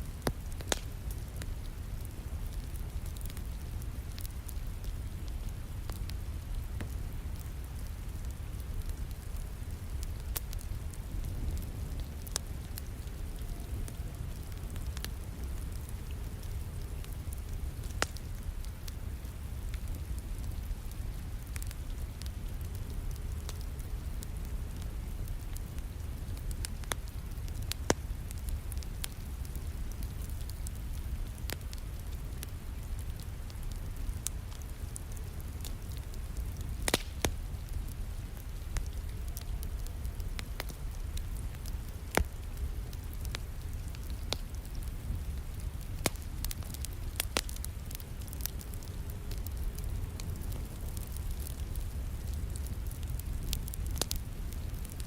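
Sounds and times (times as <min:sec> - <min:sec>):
low rumble of rain: 0:00.0 - 0:55.0
wood fire crackling in fireplace: 0:00.0 - 0:55.0.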